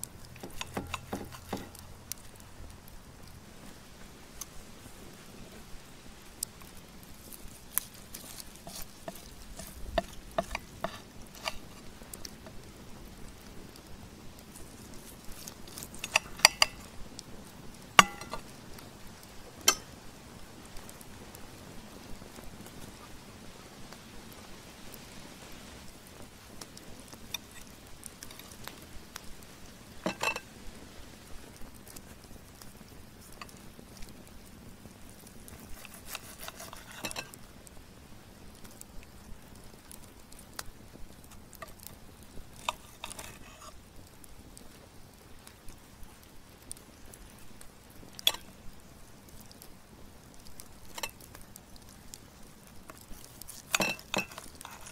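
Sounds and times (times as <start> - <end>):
knife and bone clinking on ceramic plate: 0.4 - 1.8, 8.2 - 11.6, 15.4 - 16.9, 18.0 - 18.4, 19.7 - 19.9, 30.0 - 30.4, 35.8 - 37.3, 53.6 - 54.9
cutlery clicking and scraping: 0.4 - 1.9, 7.7 - 11.8, 15.3 - 16.9, 18.0 - 18.4, 19.7 - 19.9, 30.0 - 30.4, 35.6 - 37.4, 42.6 - 43.7, 48.2 - 48.5, 53.4 - 54.9.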